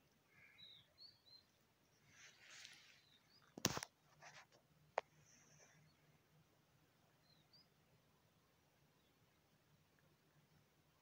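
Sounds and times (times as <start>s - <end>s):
faint bird chirps: 0.0s - 3.6s, 5.2s - 6.3s, 7.0s - 7.9s.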